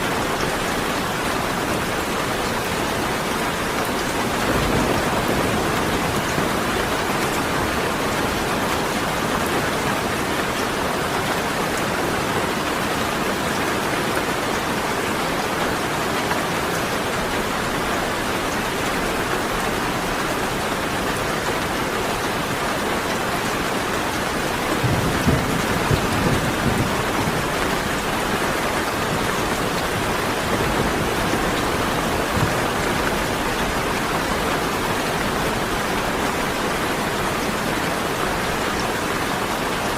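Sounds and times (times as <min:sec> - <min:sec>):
steady rain pouring: 0:00.0 - 0:39.9
low thunder rumble: 0:04.1 - 0:08.4, 0:24.5 - 0:33.5.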